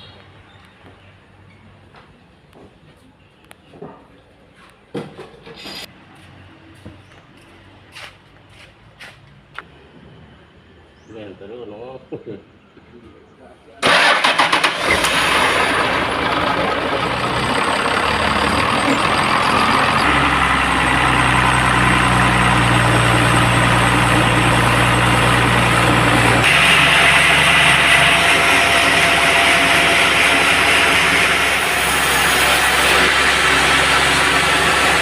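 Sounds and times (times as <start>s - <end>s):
sawmill engine running: 13.8s - 35.0s.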